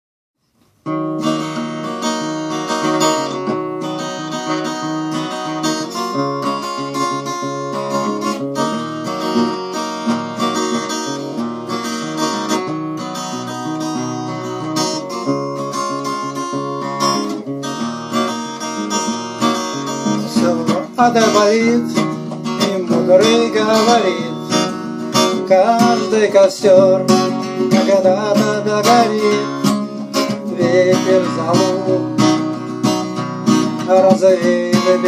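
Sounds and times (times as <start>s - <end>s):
acoustic guitar strummed and picked: 0.4s - 35.0s.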